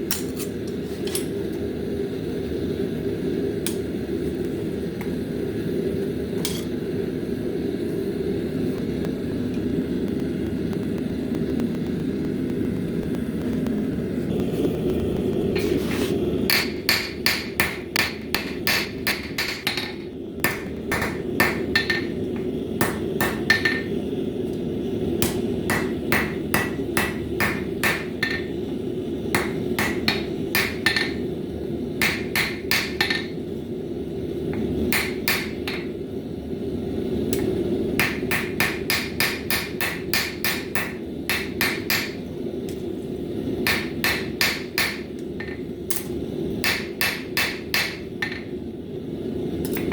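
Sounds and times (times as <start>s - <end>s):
steady low rumble: 1.6s - 47.1s
hammer striking steel on anvil: 16.5s - 22.2s, 22.8s - 23.9s, 25.2s - 28.5s, 29.4s - 31.2s, 32.0s - 33.4s, 34.9s - 35.9s, 37.3s - 42.2s, 43.6s - 48.5s.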